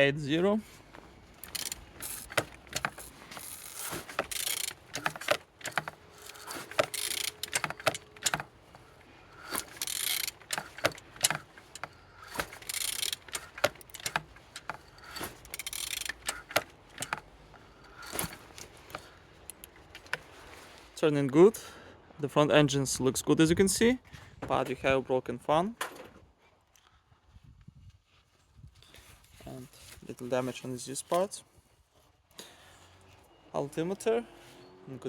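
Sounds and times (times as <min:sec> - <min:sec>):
engine turned by wrench clicking: 0:01.3 - 0:20.3.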